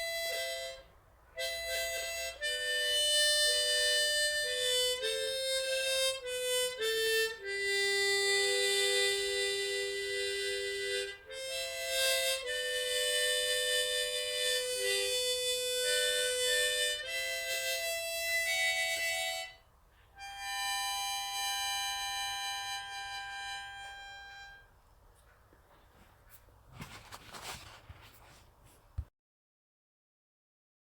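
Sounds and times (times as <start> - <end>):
harmonica playing slow melody: 0.0 - 24.8.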